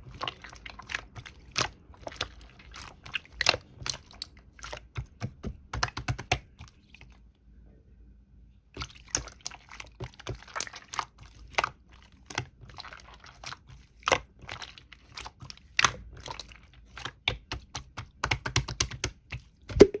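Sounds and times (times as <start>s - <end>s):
slime squished by hand: 0.0s - 7.2s, 8.8s - 20.0s
sharp clicks and pops: 19.7s - 20.0s.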